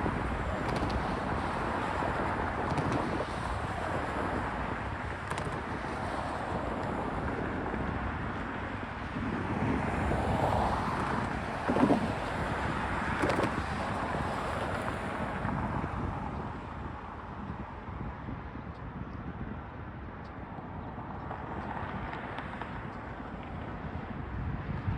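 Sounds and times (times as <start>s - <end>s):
wind on microphone: 0.0s - 24.9s.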